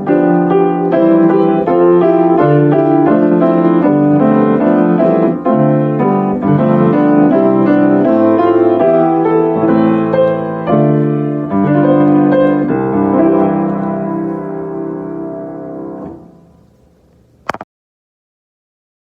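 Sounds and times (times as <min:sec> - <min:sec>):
piano playing slow chords: 0:00.0 - 0:17.0.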